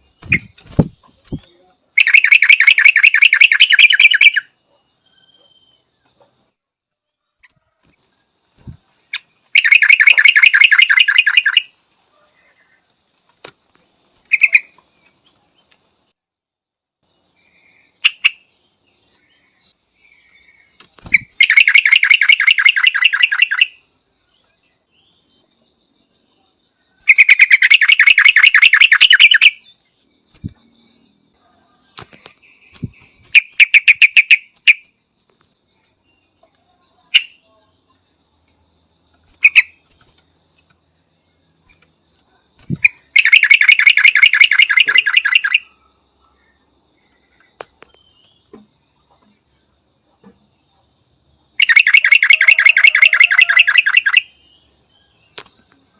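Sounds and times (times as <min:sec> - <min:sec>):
bird chattering: 0:00.2 - 0:04.5, 0:09.1 - 0:11.7, 0:21.0 - 0:23.7, 0:27.1 - 0:29.6, 0:32.7 - 0:34.8, 0:42.7 - 0:45.6, 0:51.6 - 0:54.3.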